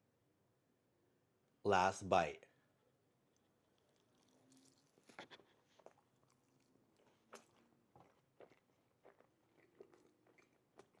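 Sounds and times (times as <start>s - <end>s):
chewing crunches and mouth clicks: 3.3s - 11.0s.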